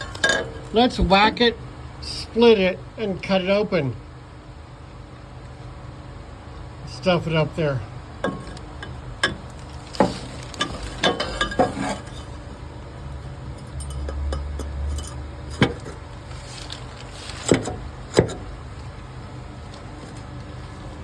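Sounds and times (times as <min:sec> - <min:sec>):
metal clanks and clinks: 0:00.0 - 0:01.3, 0:08.2 - 0:12.4, 0:13.4 - 0:16.0.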